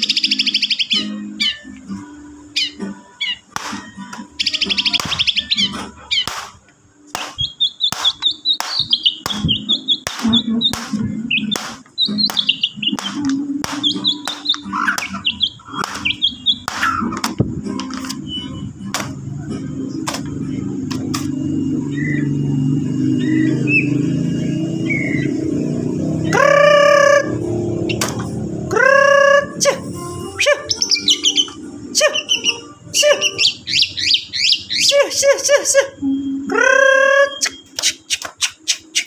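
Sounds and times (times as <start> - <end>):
bird singing chirping phrases: 0.0 - 39.0
sharp clicks: 6.2 - 15.2, 15.8 - 18.2.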